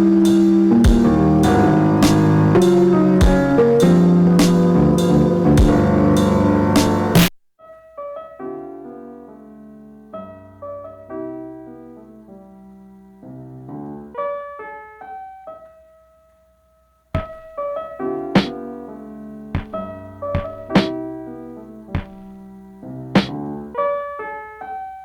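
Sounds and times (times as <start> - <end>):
soft electric piano chords: 0.0 - 7.1
sampler beat: 17.2 - 17.5, 19.6 - 19.8, 20.4 - 20.9, 22.0 - 22.3, 23.2 - 23.4.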